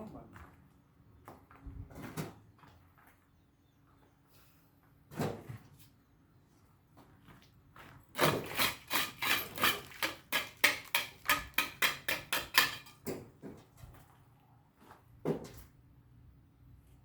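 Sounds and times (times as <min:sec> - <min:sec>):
hand tool scraping: 0:08.2 - 0:13.1.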